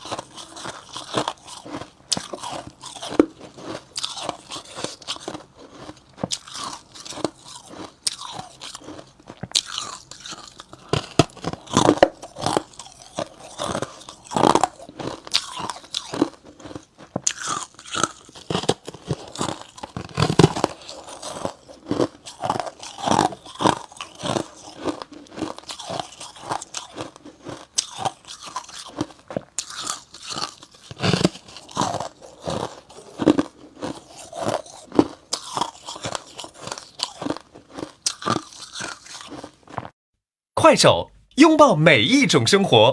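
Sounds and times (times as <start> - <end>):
crunchy frost being chewed: 0.0 - 40.0.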